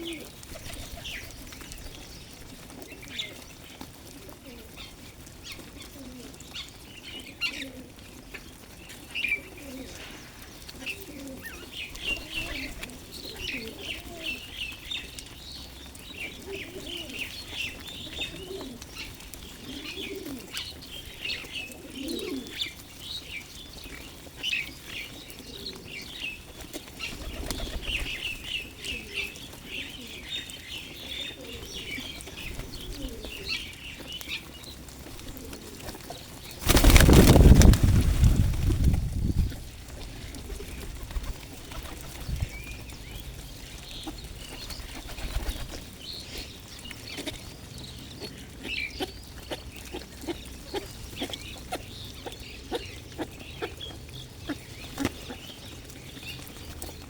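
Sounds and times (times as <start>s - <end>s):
pigeons cooing: 0.0s - 57.0s
small birds chirping: 0.0s - 57.0s
wings flapping: 0.4s - 1.3s, 27.0s - 28.3s, 35.9s - 39.6s, 40.3s - 42.4s, 44.8s - 45.9s.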